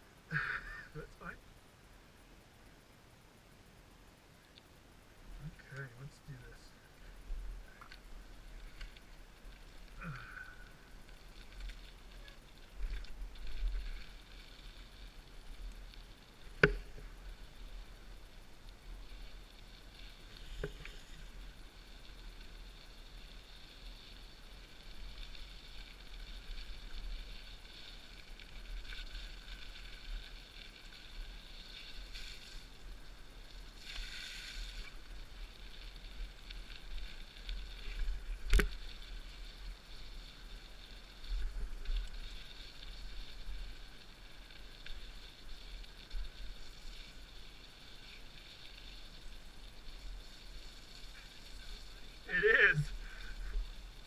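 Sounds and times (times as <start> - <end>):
bike tyre and drivetrain noise: 3.6 - 54.0.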